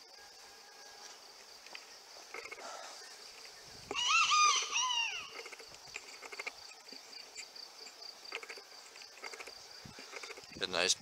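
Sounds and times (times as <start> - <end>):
high insect trill: 0.0 - 11.0
bird call: 2.4 - 5.6.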